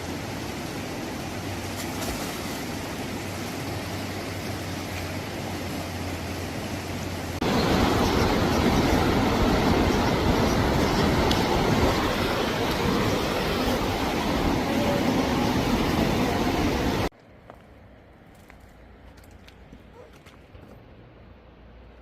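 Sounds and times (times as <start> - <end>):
steady rushing noise: 0.0 - 17.1.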